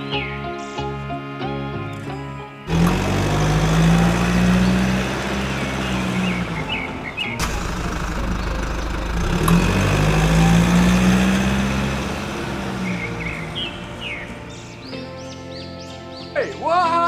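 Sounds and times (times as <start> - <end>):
motor humming: 1.9 - 14.8.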